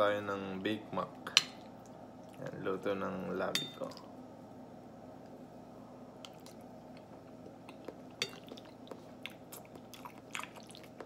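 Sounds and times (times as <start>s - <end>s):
person chewing wet food: 6.2s - 11.0s.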